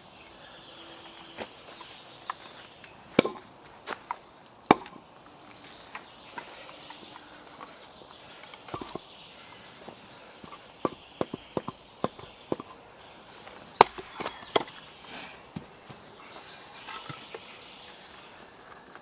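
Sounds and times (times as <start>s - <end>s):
axe chopping wood: 3.1s - 3.5s, 4.7s - 5.1s, 8.7s - 9.0s, 13.7s - 14.8s.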